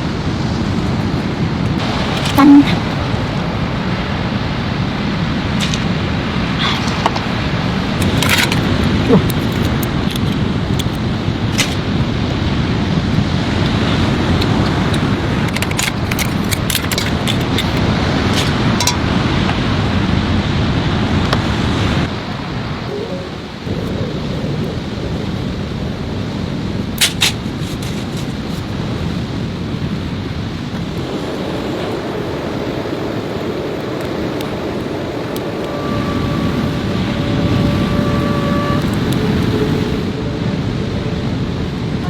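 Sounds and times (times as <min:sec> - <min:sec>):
heavy rain: 0:00.0 - 0:42.0
wind rushing: 0:17.8 - 0:42.0.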